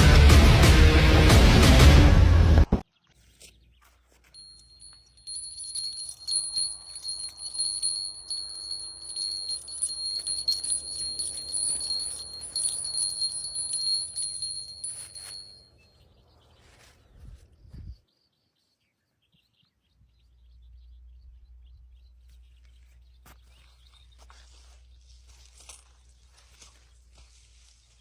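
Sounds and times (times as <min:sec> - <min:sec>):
bite alarm continuous high tone: 0:04.4 - 0:15.6.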